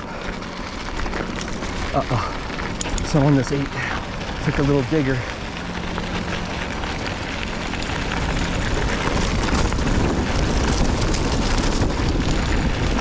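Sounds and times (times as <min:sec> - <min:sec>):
small rattles and crunches: 0:00.0 - 0:13.0
wind buffeting microphone: 0:05.1 - 0:13.0.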